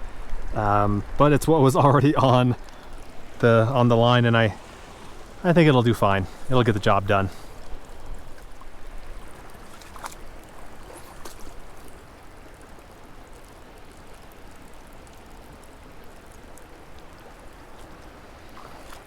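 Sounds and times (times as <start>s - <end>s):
creek water flowing: 0.0s - 19.0s
faint light ticks: 2.6s - 3.1s.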